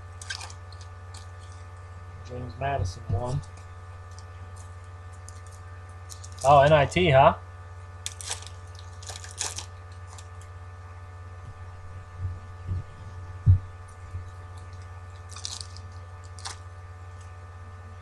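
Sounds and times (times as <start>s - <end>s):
foil wrappers crinkling and tearing: 0.0s - 1.9s, 3.3s - 6.8s, 8.0s - 10.5s, 13.9s - 17.3s
electrical hum: 0.0s - 18.0s.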